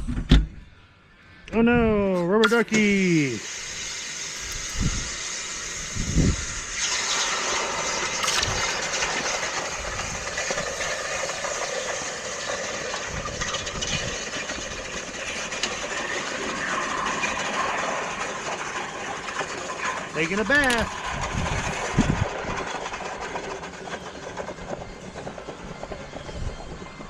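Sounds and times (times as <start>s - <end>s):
hot metal sizzling in water: 2.4s - 23.3s.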